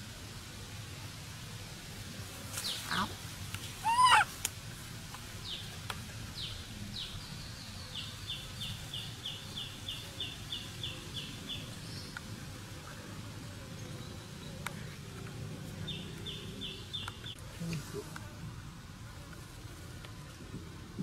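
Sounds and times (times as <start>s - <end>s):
sharp chirping bird calls: 3.8s - 4.3s.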